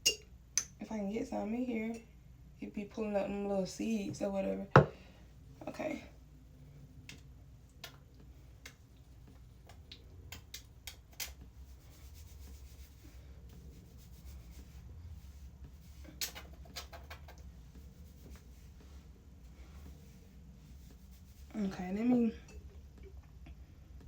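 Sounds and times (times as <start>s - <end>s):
low steady hum: 0.0s - 24.0s
hands rubbing oil through hair: 8.6s - 22.0s.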